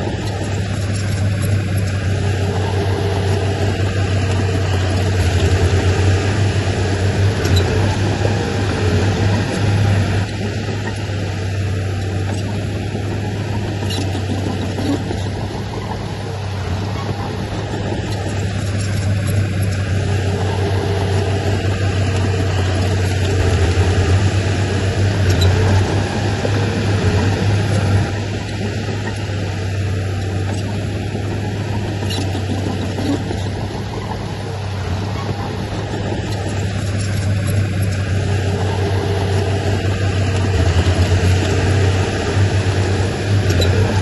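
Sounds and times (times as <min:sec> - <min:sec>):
heavy diesel engine running: 0:00.0 - 0:44.0.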